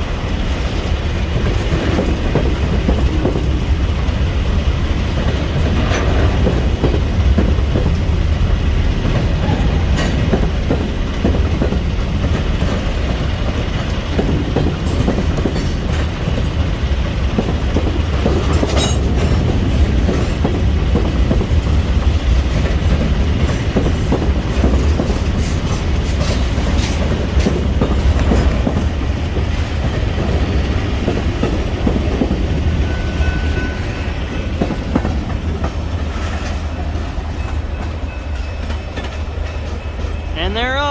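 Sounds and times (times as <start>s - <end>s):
train wheels clicking over rail joints: 0.0s - 40.4s
train low rumble: 0.0s - 40.9s.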